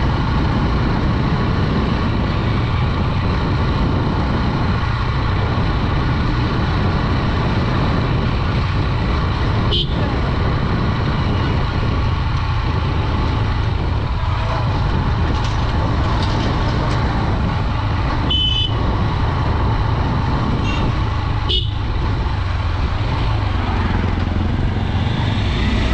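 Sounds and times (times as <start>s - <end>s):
motorcycle engine and road noise: 0.0s - 25.9s
vehicle horn toots: 9.7s - 10.0s, 18.3s - 18.8s, 21.5s - 21.8s.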